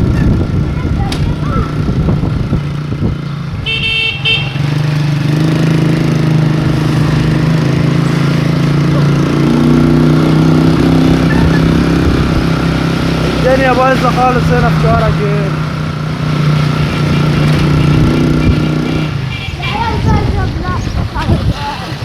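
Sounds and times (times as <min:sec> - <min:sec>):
vehicle engine running: 0:00.0 - 0:22.0
vehicle horn toot: 0:03.6 - 0:04.8, 0:17.8 - 0:20.0.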